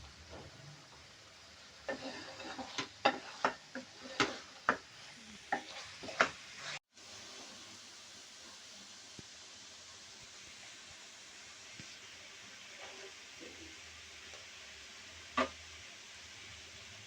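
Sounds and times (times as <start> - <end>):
faint sizzle: 0.0 - 17.0
spoon scraping cooking pan: 1.8 - 6.8, 15.4 - 15.6.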